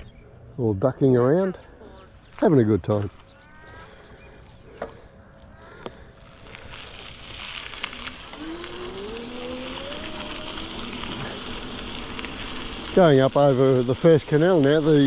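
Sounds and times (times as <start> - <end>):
motor whine rising in pitch: 7.7 - 15.0.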